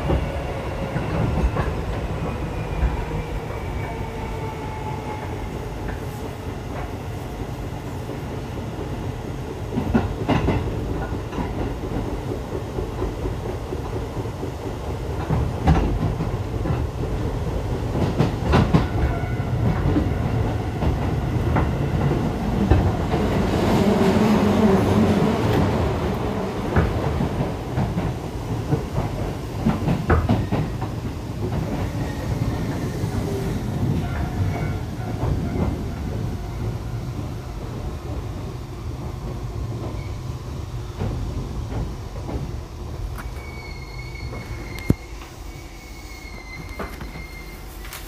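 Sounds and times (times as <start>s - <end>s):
train wheels clicking over rail joints: 5.8s - 23.3s, 25.4s - 40.1s
thin high squeal: 43.2s - 48.0s.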